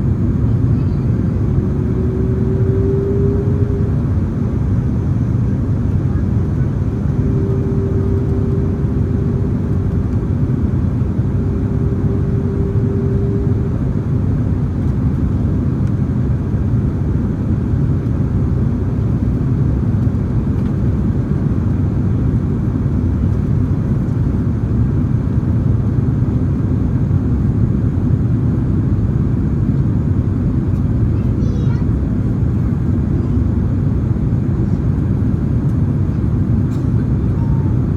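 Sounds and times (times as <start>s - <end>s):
steady hum: 0.0s - 25.0s
airplane cabin rumble: 0.0s - 37.9s.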